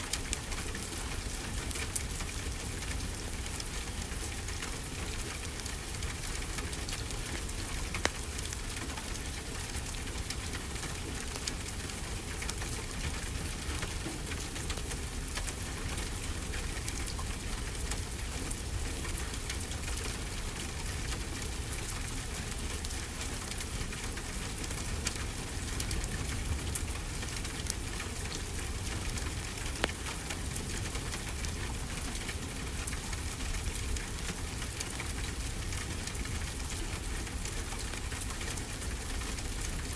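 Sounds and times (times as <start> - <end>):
steady rainfall: 0.0 - 39.9
wood fire crackling and popping: 5.3 - 10.4, 22.6 - 33.1.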